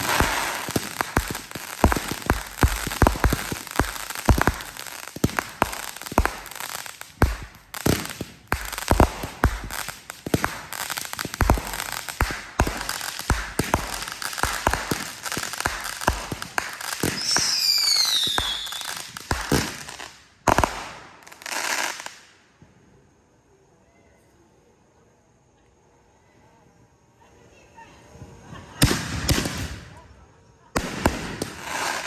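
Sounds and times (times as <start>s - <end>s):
fireworks bangs and crackling: 0.0s - 22.3s, 28.8s - 30.0s, 30.7s - 32.0s
whistling firework: 0.0s - 22.4s, 28.0s - 32.0s.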